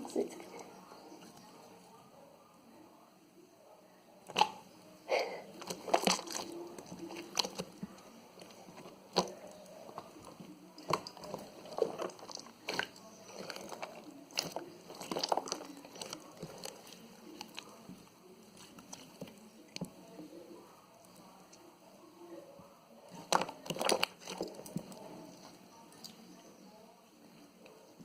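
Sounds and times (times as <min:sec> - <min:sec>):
jelly squelching by hand: 0:05.4 - 0:20.3, 0:23.1 - 0:26.3.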